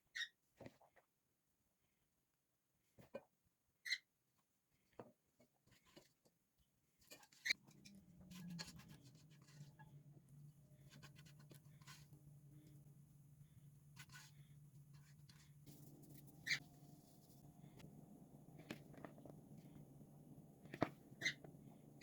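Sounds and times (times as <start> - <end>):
steady low hum: 7.6 - 22.0.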